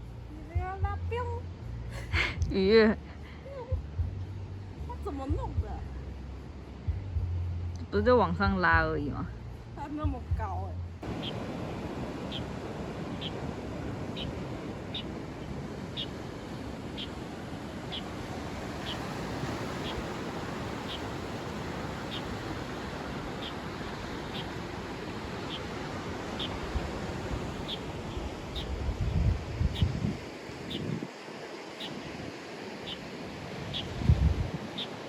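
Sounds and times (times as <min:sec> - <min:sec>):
sea surf: 0:11.0 - 0:35.0
bird chirping: 0:13.1 - 0:13.4, 0:14.1 - 0:16.2, 0:18.8 - 0:19.1, 0:19.7 - 0:20.2, 0:20.8 - 0:21.2, 0:21.9 - 0:22.4, 0:27.6 - 0:30.0, 0:33.7 - 0:34.0, 0:34.7 - 0:35.0.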